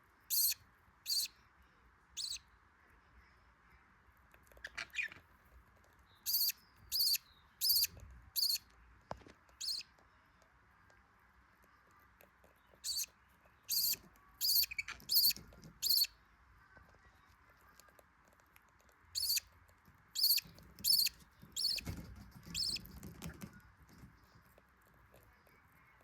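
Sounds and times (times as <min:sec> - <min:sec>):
nestlings begging squeaks: 0:00.3 - 0:01.3, 0:02.2 - 0:02.4, 0:04.6 - 0:05.2, 0:06.3 - 0:08.6, 0:09.6 - 0:09.8, 0:12.8 - 0:13.1, 0:13.7 - 0:16.1, 0:19.2 - 0:19.5, 0:20.2 - 0:22.8.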